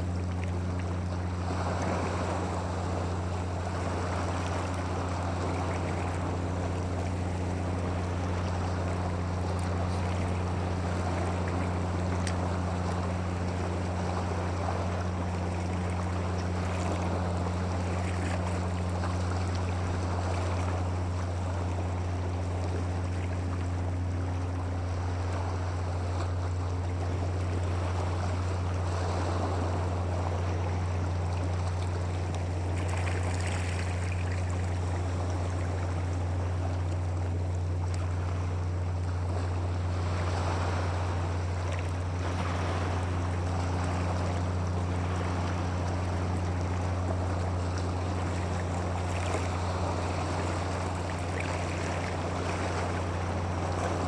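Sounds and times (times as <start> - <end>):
low hum: 0.0 - 54.0
running water rushing: 0.0 - 54.0.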